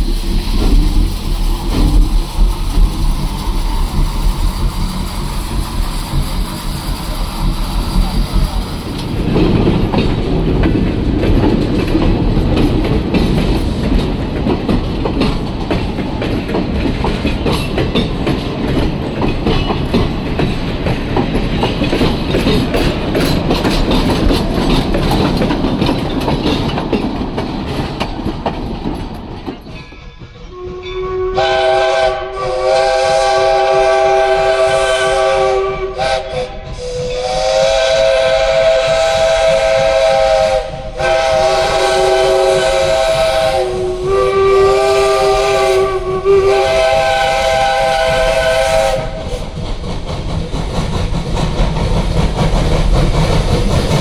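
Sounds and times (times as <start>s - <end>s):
train wheels clicking over rail joints: 0.0s - 54.0s
steam locomotive chime whistle: 29.7s - 49.4s.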